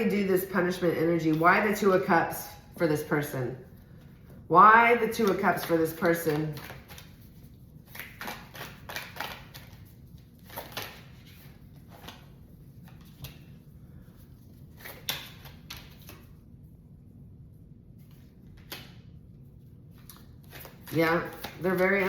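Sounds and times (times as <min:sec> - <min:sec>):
cards being shuffled: 0:05.1 - 0:13.7, 0:19.9 - 0:22.0.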